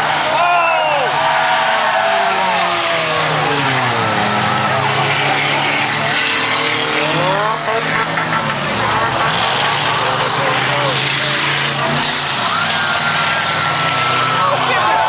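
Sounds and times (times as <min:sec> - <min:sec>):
car engines revving: 0:00.0 - 0:15.0
tyre and road noise: 0:00.0 - 0:15.0.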